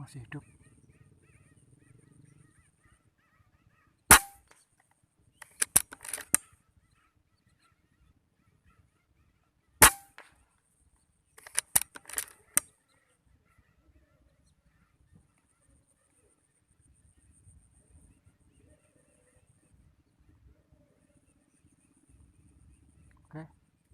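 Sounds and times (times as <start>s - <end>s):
faint bird chirps: 0.0s - 5.6s, 6.3s - 9.8s, 12.3s - 23.9s
air rifle shots: 4.1s - 4.6s, 5.4s - 6.4s, 9.8s - 10.3s
clicks and rustling: 5.4s - 6.4s, 11.4s - 12.7s.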